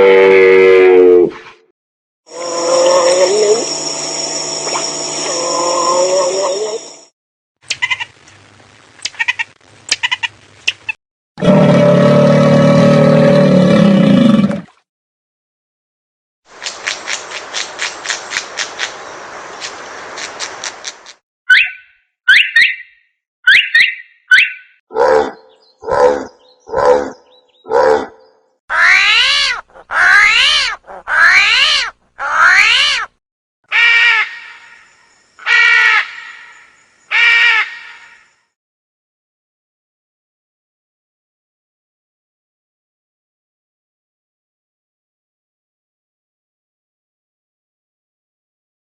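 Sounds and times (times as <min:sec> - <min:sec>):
drawn-out rising and falling calls: 0:28.2 - 0:33.1.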